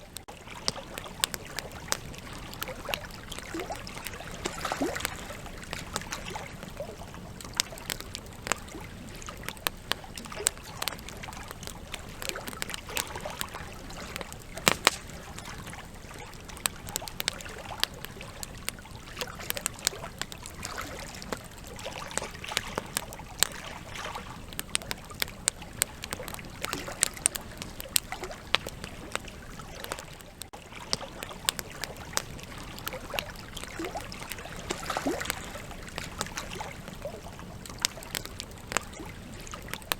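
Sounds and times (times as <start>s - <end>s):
campfire crackling and popping: 0.0s - 39.9s
low hiss of flames: 0.1s - 30.6s.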